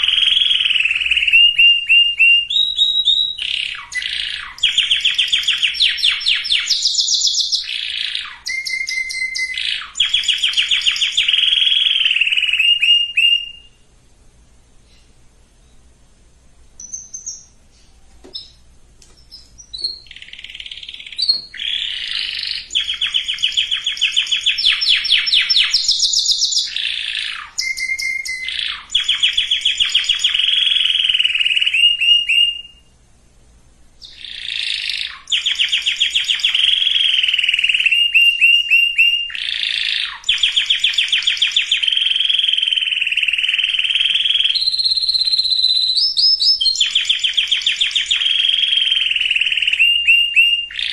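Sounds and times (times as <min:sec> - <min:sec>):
canary singing trills: 0:00.0 - 0:13.9, 0:16.8 - 0:33.0, 0:34.0 - 0:50.9.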